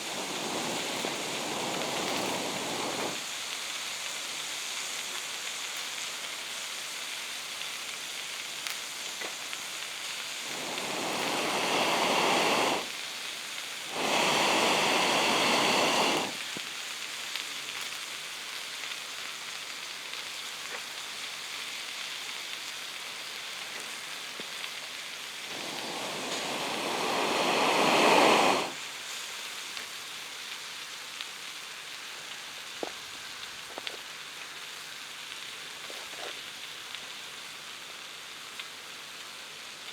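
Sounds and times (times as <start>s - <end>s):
food sizzling over campfire: 0.0s - 39.9s
loud rushing noises: 25.5s - 28.8s.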